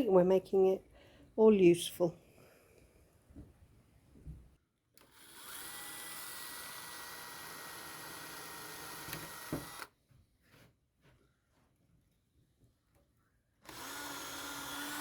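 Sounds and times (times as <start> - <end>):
power drill whining: 5.0 - 9.9, 13.6 - 15.0.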